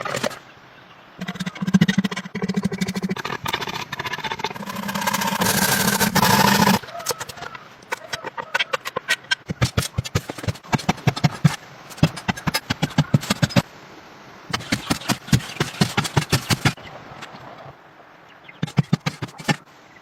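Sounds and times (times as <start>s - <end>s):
rapid sharp knocks: 8.7s - 13.6s, 14.5s - 16.8s, 18.6s - 19.6s.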